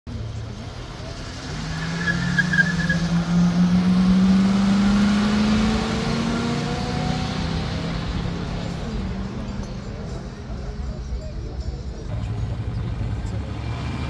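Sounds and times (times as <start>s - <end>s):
car engines accelerating: 0.1s - 14.0s
tyre squeal: 1.5s - 3.2s.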